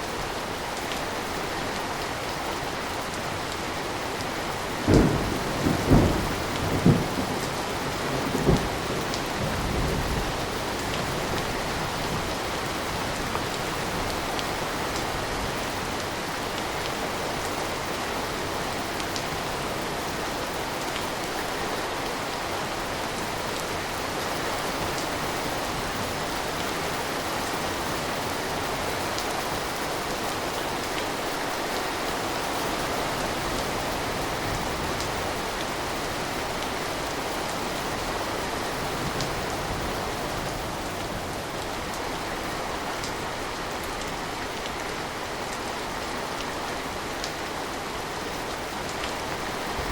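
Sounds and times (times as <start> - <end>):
steady rain: 0.0 - 49.9
thunder rumbling: 4.7 - 11.4.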